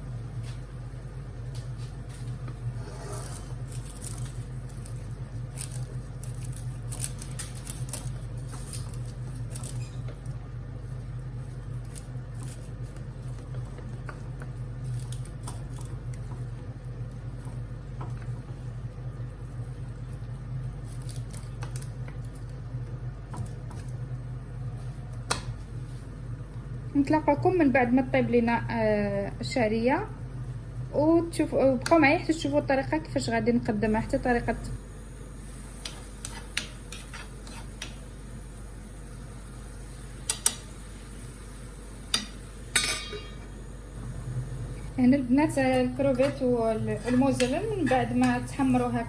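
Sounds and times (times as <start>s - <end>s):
steady low hum: 0.0s - 49.0s
vegetables crackling in a pan: 3.3s - 10.4s, 11.3s - 18.3s, 20.1s - 24.1s, 35.4s - 42.8s, 44.0s - 49.0s.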